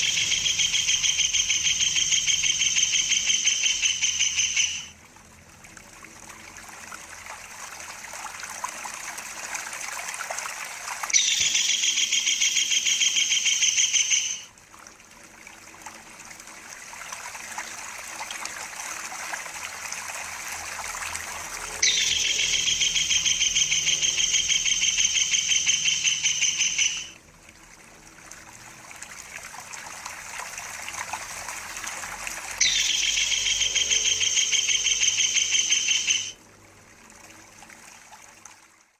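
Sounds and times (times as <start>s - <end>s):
kingfisher high rolling trill: 21.2s - 27.2s, 32.5s - 36.4s.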